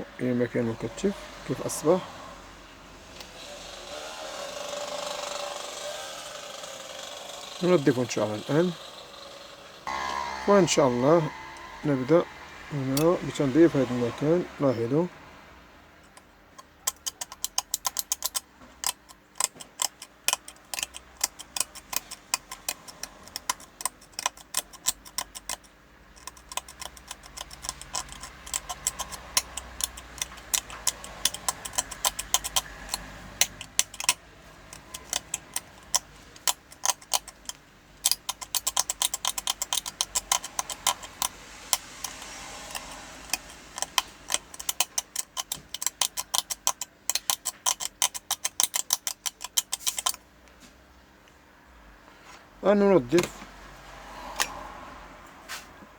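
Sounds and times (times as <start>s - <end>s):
scraping a circuit board: 9.9s - 14.8s, 16.1s - 50.2s.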